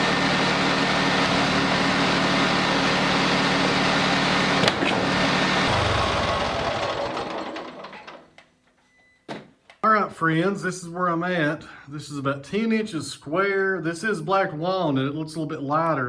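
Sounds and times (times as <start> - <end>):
sawmill engine running: 0.0 - 8.2.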